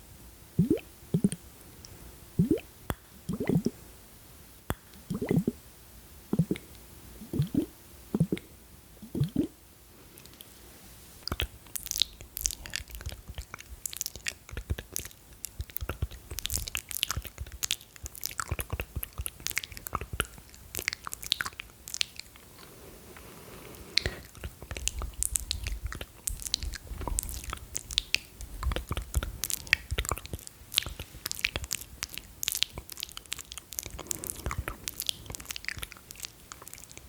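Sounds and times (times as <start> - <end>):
low gulping mouth pops: 0.6 - 1.4, 2.4 - 3.7, 4.7 - 5.6, 6.3 - 9.5, 24.0 - 36.2
sticky crackly mouth clicks: 11.2 - 22.6, 24.0 - 37.0.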